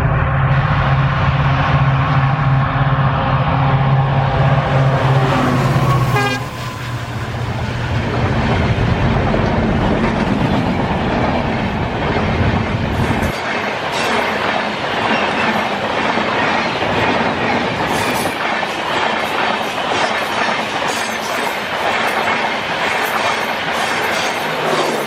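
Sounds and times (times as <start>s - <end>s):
locomotive engine rumble: 0.0s - 13.2s
train horn: 0.5s - 7.0s
wheels on rails: 4.4s - 25.0s.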